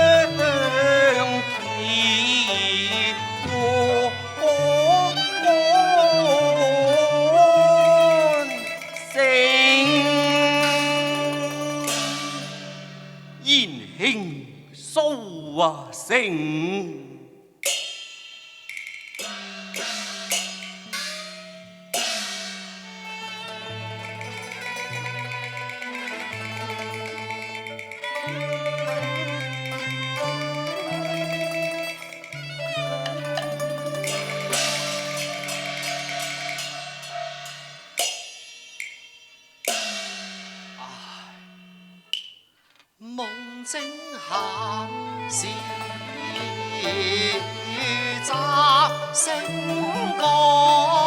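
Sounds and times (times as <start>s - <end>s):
instrumental ensemble held notes: 0.0s - 14.4s, 18.6s - 42.4s, 43.2s - 51.0s
cymbal strikes: 10.1s - 13.7s, 17.6s - 42.6s.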